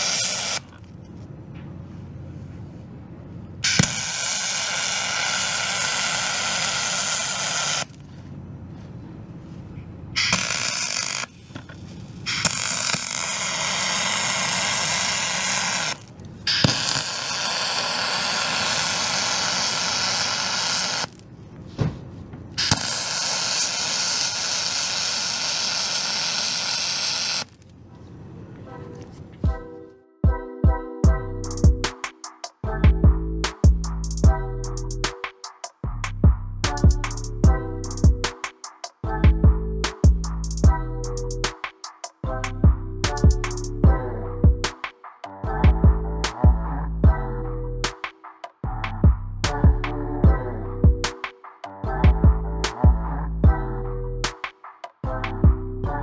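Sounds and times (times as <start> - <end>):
welding arc hissing and crackling: 0.0 - 0.6, 3.7 - 8.0, 10.2 - 21.2, 22.6 - 27.6.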